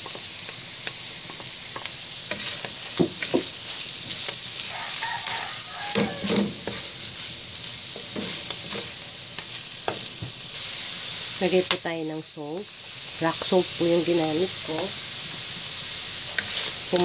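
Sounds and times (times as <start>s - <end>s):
food sizzling in oil: 0.0s - 17.0s
wooden spatula scraping a pan: 1.8s - 9.0s, 16.3s - 17.0s.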